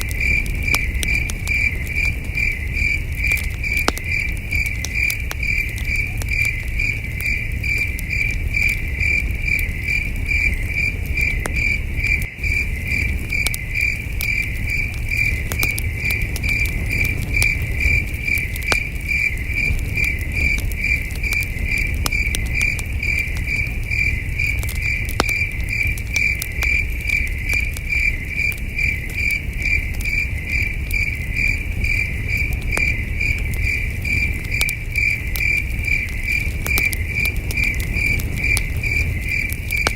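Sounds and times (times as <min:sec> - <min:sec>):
campfire crackling: 0:00.0 - 0:39.9
crickets chirping: 0:00.0 - 0:39.9.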